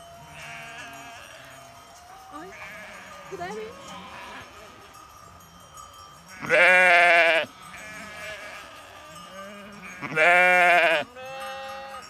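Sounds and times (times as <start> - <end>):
sheep bleating: 0.2 - 1.6, 2.4 - 4.8, 6.3 - 12.0.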